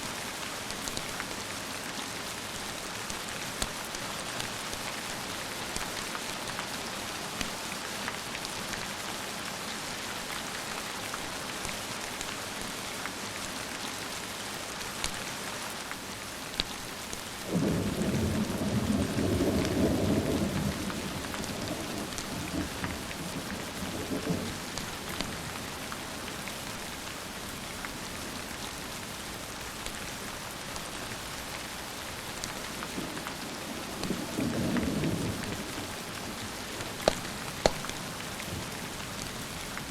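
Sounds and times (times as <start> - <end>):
steady rain falling: 0.0 - 39.9
thunder rumbling: 17.5 - 25.2.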